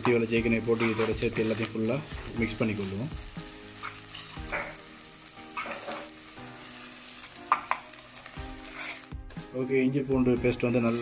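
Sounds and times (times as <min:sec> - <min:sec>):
food sizzling in hot oil: 0:00.0 - 0:11.0
spatula scraping a pan: 0:00.6 - 0:03.0, 0:03.8 - 0:04.8, 0:05.4 - 0:09.2.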